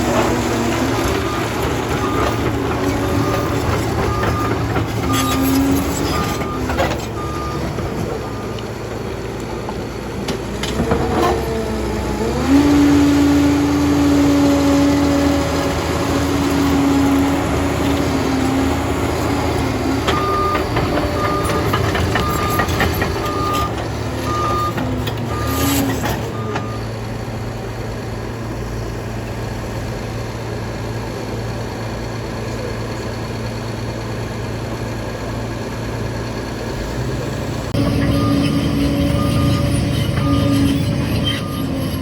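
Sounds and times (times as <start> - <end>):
bulldozer engine running: 0.0 - 42.0
reversing alarm beeping: 1.2 - 8.6, 20.0 - 26.9, 37.8 - 42.0.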